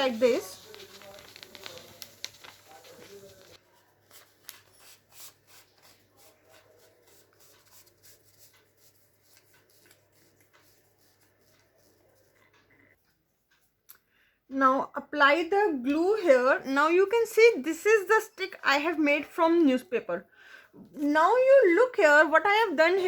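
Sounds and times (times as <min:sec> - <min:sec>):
newspaper rustling and crinkling: 0:00.0 - 0:12.3.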